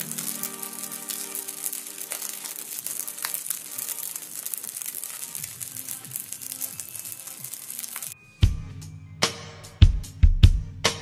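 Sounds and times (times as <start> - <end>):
food sizzling in oil: 0.0 - 8.2
background music: 0.0 - 11.0.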